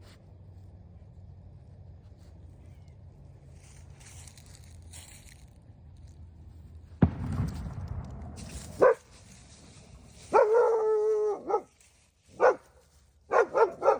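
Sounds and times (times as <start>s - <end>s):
rustling: 7.2s - 13.9s
puppy barking: 8.8s - 9.1s, 10.3s - 11.7s, 12.4s - 12.7s, 13.3s - 13.9s.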